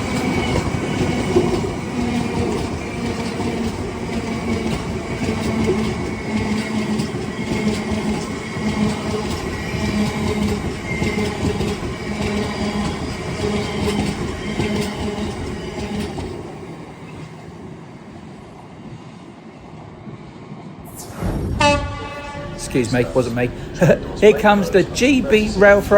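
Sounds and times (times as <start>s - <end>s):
train wheels clacking over rails: 0.0s - 17.9s, 21.6s - 25.9s
wheel squeal: 4.4s - 16.2s.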